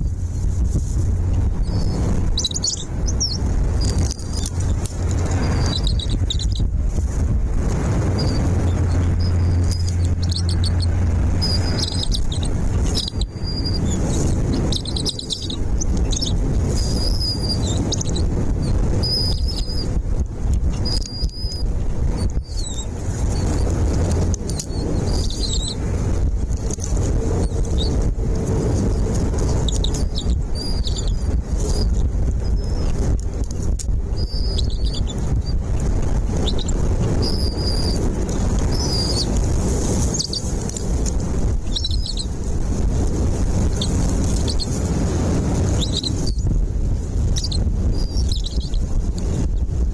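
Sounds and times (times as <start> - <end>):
steady low rumble: 0.0 - 49.9
small birds chirping: 1.6 - 6.7, 8.1 - 20.0, 20.8 - 25.8, 28.8 - 33.0, 34.1 - 35.6, 36.2 - 41.0, 41.7 - 42.4, 43.6 - 44.8, 45.6 - 46.5, 47.3 - 48.8.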